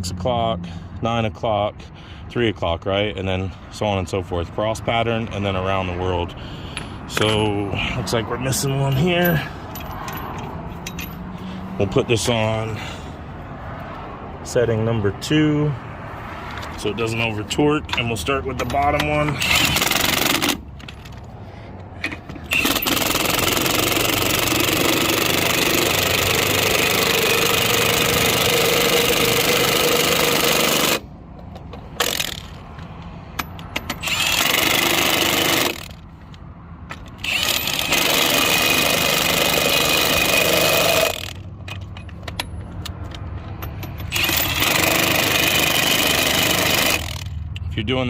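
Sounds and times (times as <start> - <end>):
impact wrench hammering: 17.9 - 20.7, 22.0 - 32.6, 33.3 - 36.0, 36.9 - 42.7, 43.6 - 47.3.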